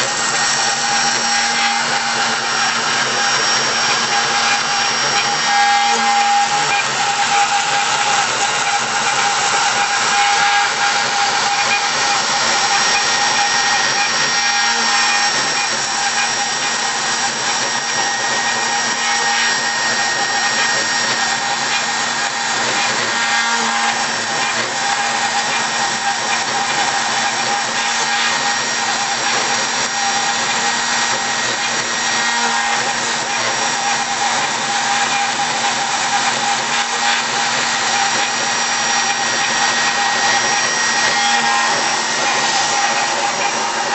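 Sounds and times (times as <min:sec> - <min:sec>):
cnc machine motor whine: 0:00.0 - 0:43.9.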